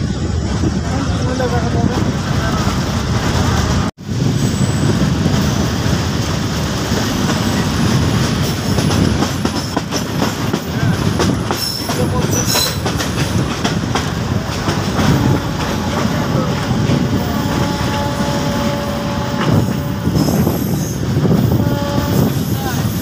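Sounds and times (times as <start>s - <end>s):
train rumbling on track: 0.0s - 23.0s
wheels clacking over rail joints: 5.2s - 21.6s
high wheel squeals: 20.0s - 23.0s.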